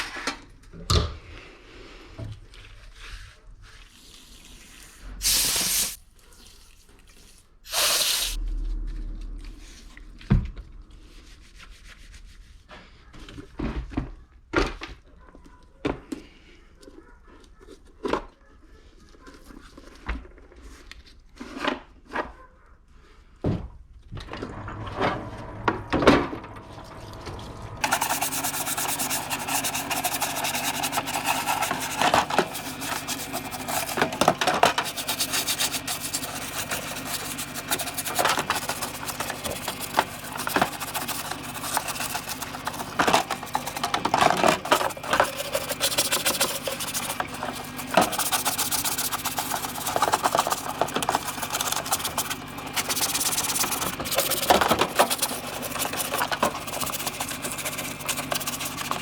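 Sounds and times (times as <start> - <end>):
steady machine noise: 7.7 - 11.9, 24.2 - 59.0
rubbing scrapes of parts: 27.7 - 59.0.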